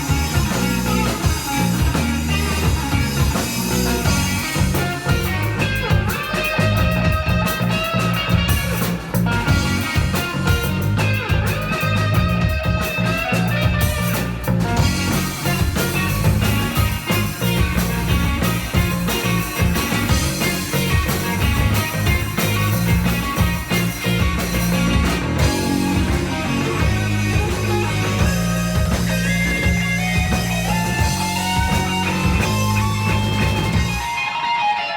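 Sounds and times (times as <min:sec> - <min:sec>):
bass: 0:00.0 - 0:34.3
drums: 0:00.0 - 0:34.9
electric guitar: 0:00.0 - 0:34.9.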